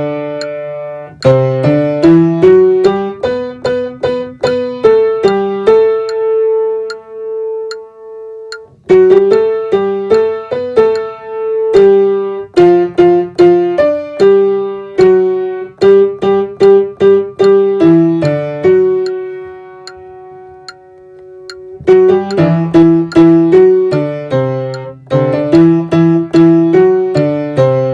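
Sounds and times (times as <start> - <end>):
piano playing hymn: 0.0 - 27.9
faint high ticks: 5.2 - 5.4, 8.5 - 8.7, 17.4 - 17.6, 20.6 - 23.3, 24.7 - 25.0.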